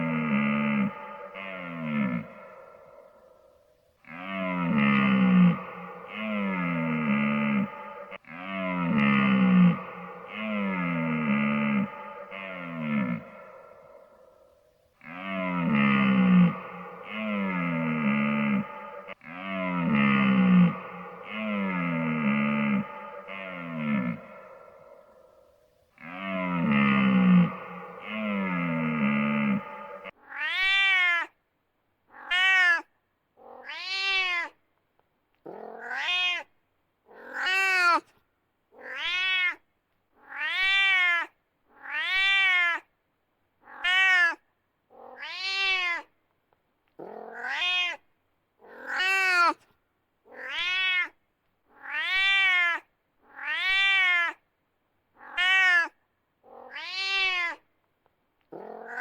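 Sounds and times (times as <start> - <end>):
cat meowing: 32.2 - 32.8, 35.8 - 36.4, 40.3 - 42.8, 43.7 - 44.4, 45.2 - 46.0, 47.3 - 48.0, 50.4 - 51.1, 51.8 - 52.8, 53.4 - 54.4, 55.2 - 55.9, 56.7 - 57.6.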